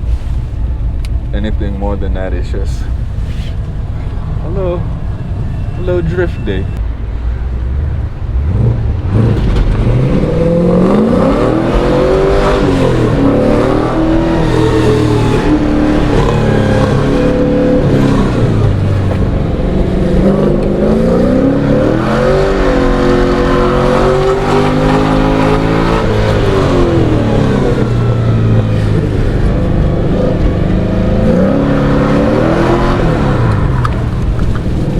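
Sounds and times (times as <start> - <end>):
car engine revving: 7.5 - 34.9.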